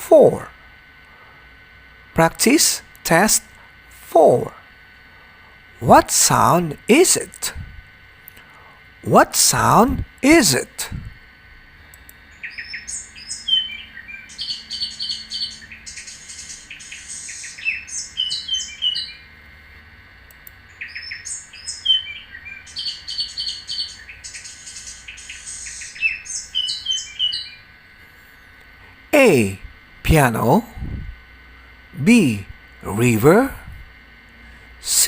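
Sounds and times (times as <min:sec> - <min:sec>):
birdsong chirps and trills: 0:04.2 - 0:19.6, 0:20.4 - 0:31.0.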